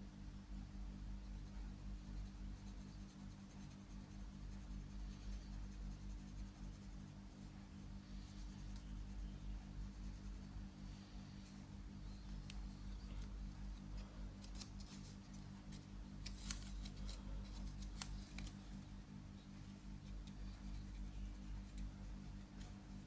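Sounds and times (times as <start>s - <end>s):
low steady hum: 0.0s - 23.0s
paper rustling as it is folded: 12.4s - 18.8s.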